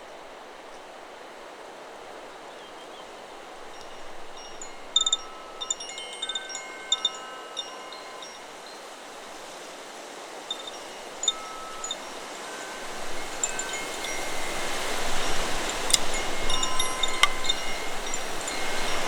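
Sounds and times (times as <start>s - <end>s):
wind rushing through trees: 0.0s - 19.0s
wind chime ringing: 3.6s - 9.6s, 10.5s - 19.0s.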